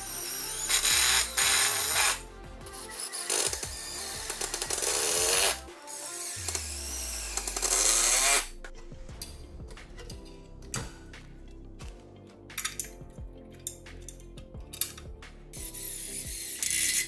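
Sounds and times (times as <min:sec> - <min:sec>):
small electric motor running: 0:00.0 - 0:02.2, 0:02.8 - 0:08.5
background music: 0:00.0 - 0:17.0.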